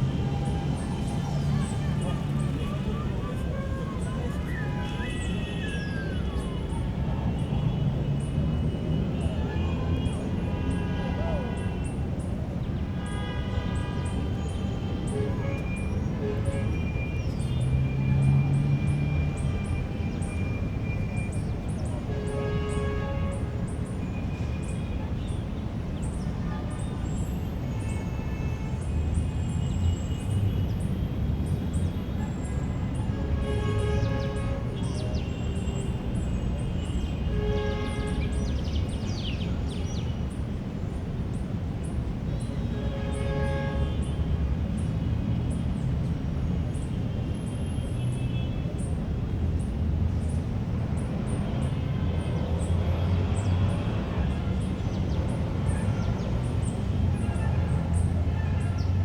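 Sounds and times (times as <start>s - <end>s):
low rumble of city noise: 0.0s - 59.0s.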